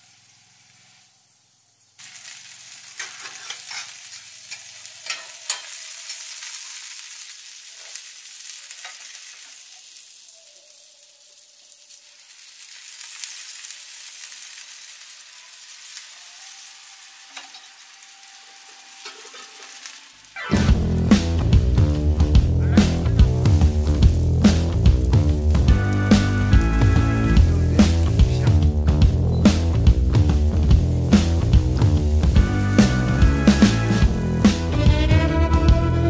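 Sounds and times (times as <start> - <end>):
oil sizzling on hot griddle: 0.0 - 36.0
crackles and pops: 1.9 - 16.6, 17.3 - 34.9.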